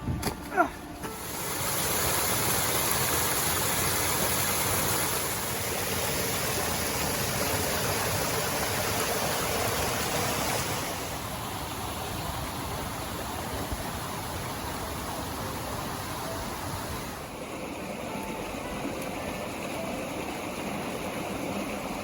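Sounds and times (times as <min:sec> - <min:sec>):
creek rushing over rocks: 0:00.9 - 0:22.0.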